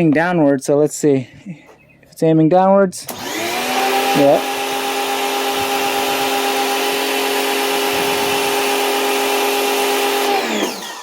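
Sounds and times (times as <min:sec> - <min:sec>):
pressure washer motor hum: 0:03.0 - 0:11.0.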